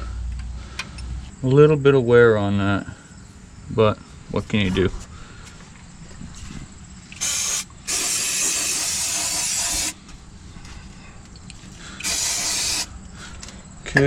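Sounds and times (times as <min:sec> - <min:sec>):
aerosol spray can hissing: 0:07.2 - 0:10.0, 0:12.0 - 0:13.0.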